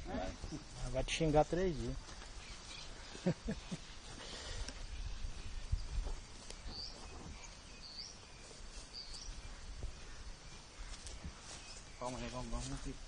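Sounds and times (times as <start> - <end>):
small bird chirping: 4.6 - 13.0.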